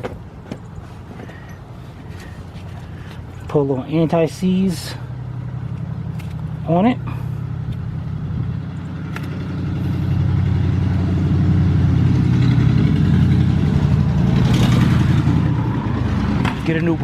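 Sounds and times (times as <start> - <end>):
vehicle engine running: 0.8 - 17.0.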